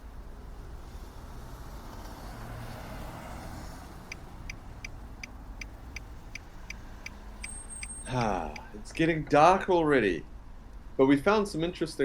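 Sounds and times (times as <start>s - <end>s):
fast even ticking: 4.1s - 8.9s.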